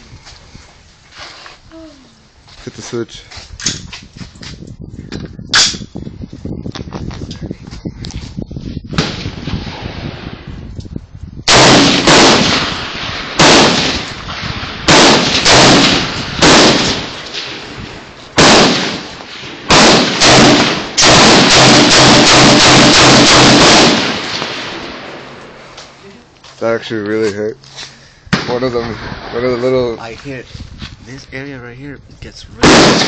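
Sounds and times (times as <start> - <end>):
rifle shots with echo: 11.5 - 25.6, 28.3 - 29.6, 32.6 - 33.0.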